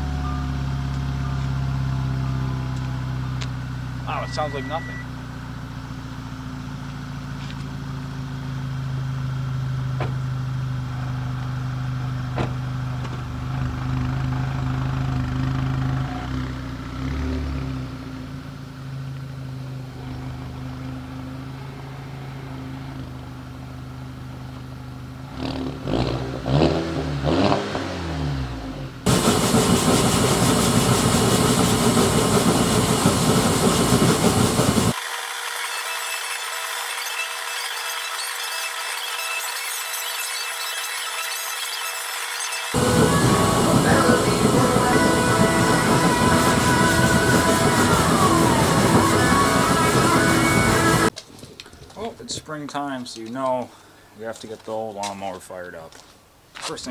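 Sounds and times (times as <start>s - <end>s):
car engine idling and revving: 0.0s - 35.0s, 42.7s - 51.2s
loud harsh steady noise: 29.1s - 35.0s, 42.7s - 51.1s.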